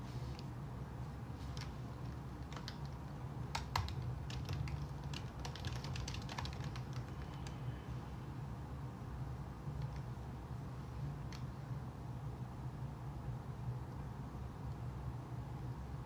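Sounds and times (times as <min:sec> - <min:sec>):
steady low hum: 0:00.0 - 0:16.0
keyboard typing: 0:01.4 - 0:07.6.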